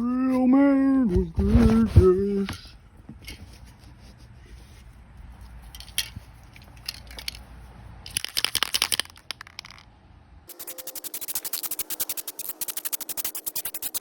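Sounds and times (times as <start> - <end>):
spray can rattling: 8.1 - 9.8, 10.5 - 14.0.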